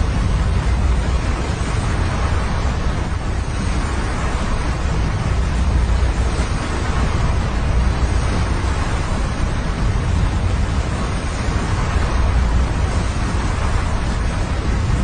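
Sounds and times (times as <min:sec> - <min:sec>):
deep rumble: 0:00.0 - 0:15.0
slushy river rushing: 0:00.0 - 0:15.0.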